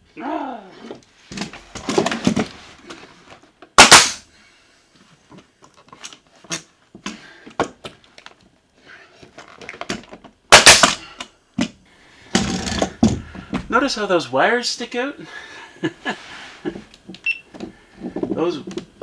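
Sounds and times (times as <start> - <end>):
hammer banging nails into boards: 3.8 - 4.2, 10.5 - 11.0.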